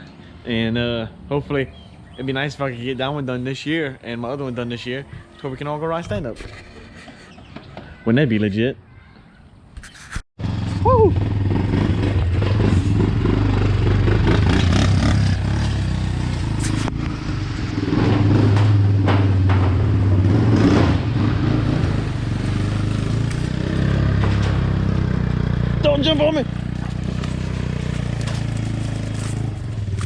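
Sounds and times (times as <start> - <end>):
vehicle engine drone: 10.4 - 30.0
knocks and rattles: 17.8 - 21.9, 23.1 - 25.0.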